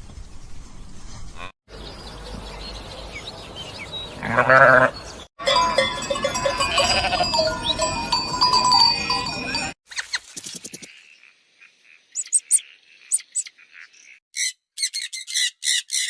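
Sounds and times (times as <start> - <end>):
livestock herd: 1.4 - 9.8
goat or sheep bleating: 4.2 - 7.6
livestock bells ringing: 5.4 - 9.8.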